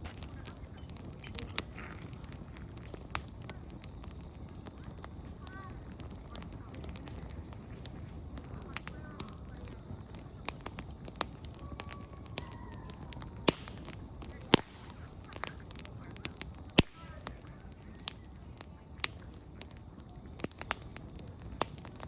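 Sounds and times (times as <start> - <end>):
campfire crackling and popping: 0.0 - 22.0
low rustle of flames: 0.0 - 22.0.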